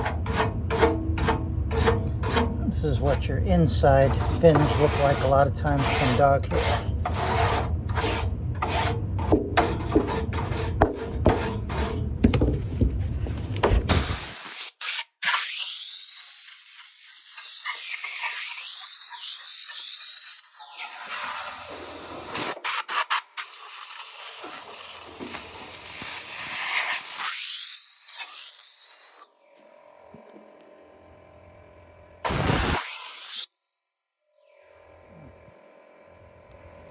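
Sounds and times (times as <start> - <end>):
brush scrubbing metal fins: 0.0 - 12.0
spray hissing: 32.3 - 33.5.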